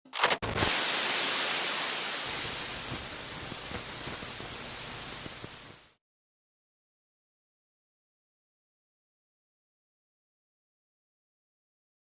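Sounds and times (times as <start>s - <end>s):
static-like hiss: 0.4s - 6.0s.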